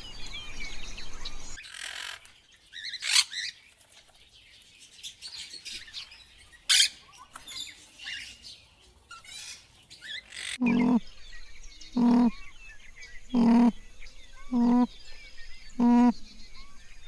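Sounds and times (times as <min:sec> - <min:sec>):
small birds chirping: 0:00.0 - 0:17.0
farm animal calling: 0:10.4 - 0:11.2, 0:11.8 - 0:12.6, 0:13.2 - 0:16.8.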